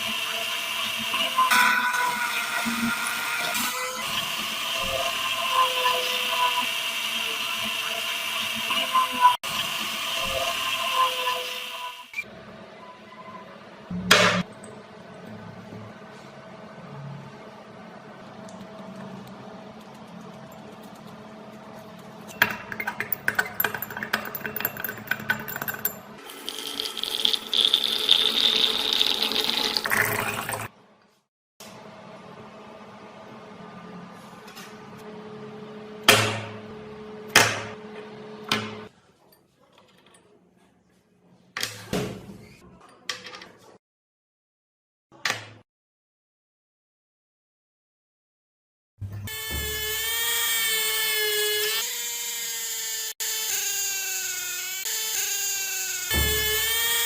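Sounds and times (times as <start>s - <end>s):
high-pitched grinding whir: 0.0s - 12.3s, 49.3s - 57.0s
rotary power tool on steel: 49.3s - 57.0s.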